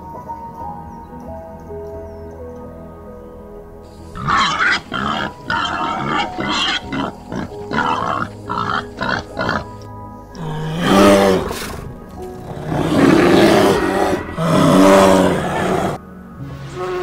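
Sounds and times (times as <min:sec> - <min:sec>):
soft background music: 0:00.0 - 0:17.0
wild boar grunting: 0:04.1 - 0:16.0.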